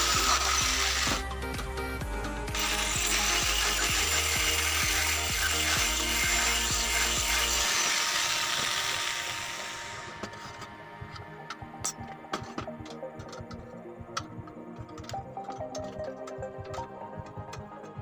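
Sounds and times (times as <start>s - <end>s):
electric drill boring holes: 0.0s - 1.6s, 2.5s - 10.8s
background music with steady beat: 0.0s - 18.0s.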